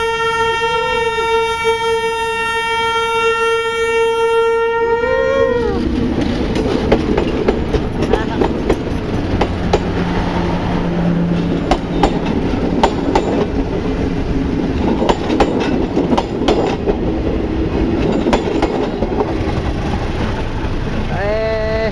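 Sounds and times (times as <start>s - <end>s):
train wheels clattering over rail joints: 5.8s - 10.3s, 11.2s - 21.2s.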